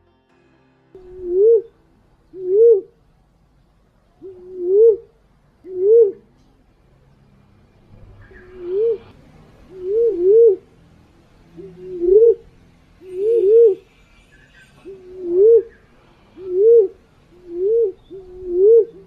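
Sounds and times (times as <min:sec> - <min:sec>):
pigeon cooing: 0:01.0 - 0:03.0, 0:04.2 - 0:06.3, 0:08.2 - 0:10.7, 0:11.5 - 0:19.0.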